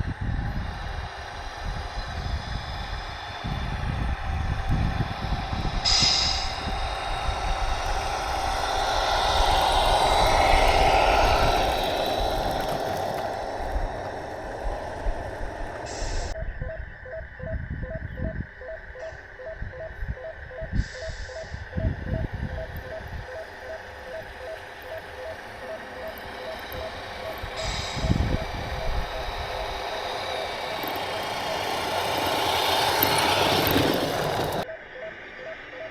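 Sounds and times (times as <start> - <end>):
vehicle running: 0.0 - 16.4, 20.8 - 35.4
low rumble: 0.0 - 17.0.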